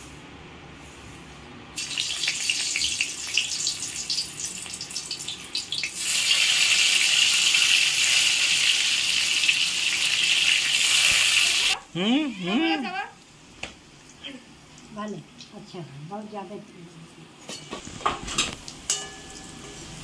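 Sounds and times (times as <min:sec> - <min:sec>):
food sizzling in hot oil: 0:01.8 - 0:11.8, 0:17.8 - 0:20.0.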